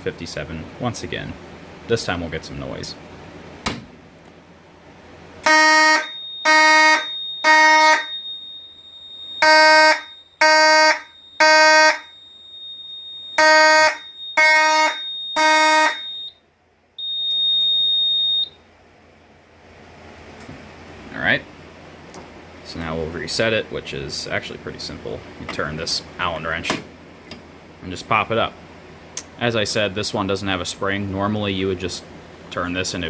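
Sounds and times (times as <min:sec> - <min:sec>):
fire alarm horn blasts: 0:05.4 - 0:18.6
thin high steady beep: 0:17.0 - 0:18.6.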